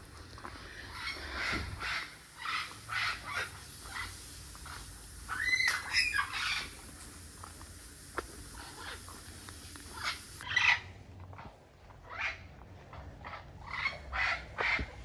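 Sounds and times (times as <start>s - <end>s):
parrots squawking: 0.7s - 6.8s, 8.6s - 9.2s, 9.8s - 10.8s.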